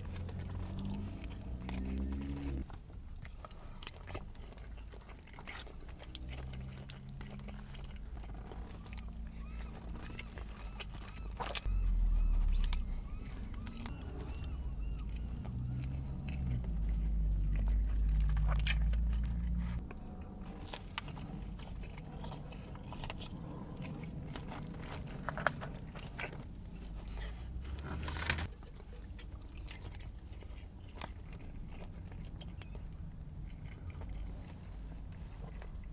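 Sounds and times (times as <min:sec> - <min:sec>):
food crunching: 0:00.0 - 0:35.9
person chewing food: 0:00.0 - 0:35.9
heavy low rumble: 0:06.0 - 0:28.6.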